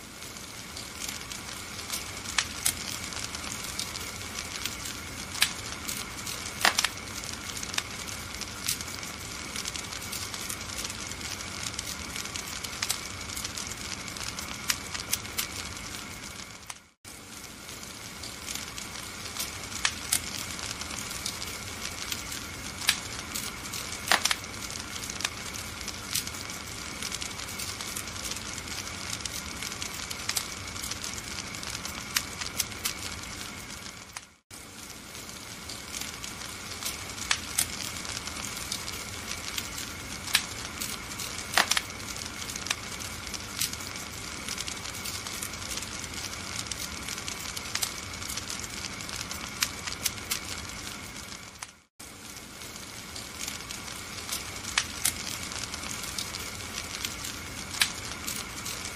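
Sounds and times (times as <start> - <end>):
steady hiss: 0.0 - 58.9
wood fire crackling and popping: 0.0 - 58.9.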